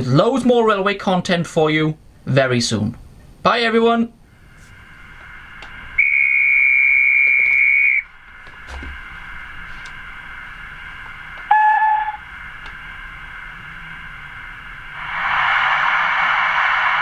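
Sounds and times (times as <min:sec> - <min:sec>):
steady hiss: 0:00.0 - 0:17.0
steam locomotive whistle: 0:04.6 - 0:08.2, 0:09.0 - 0:17.0.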